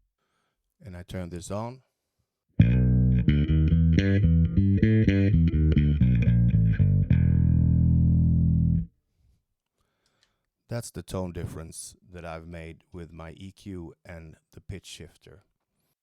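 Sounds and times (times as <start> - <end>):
electric bass notes: 2.6 - 8.9.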